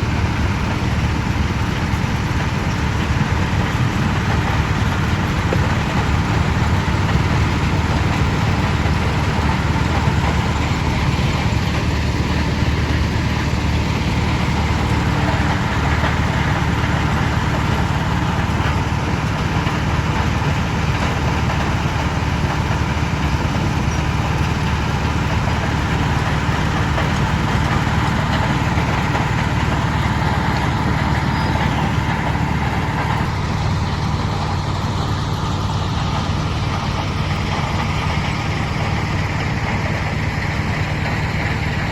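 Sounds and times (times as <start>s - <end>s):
crushing machinery drone: 0.0s - 41.9s.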